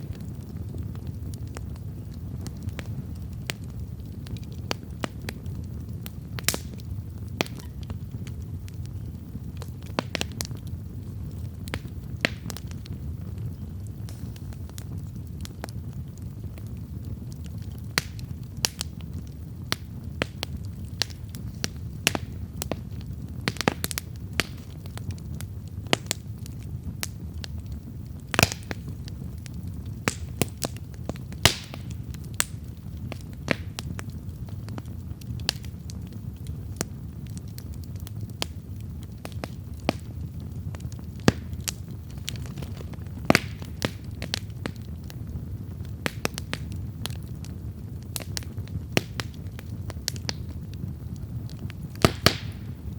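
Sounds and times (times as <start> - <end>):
campfire flames rushing: 0.0 - 52.9
fire crackling and popping: 0.0 - 52.9.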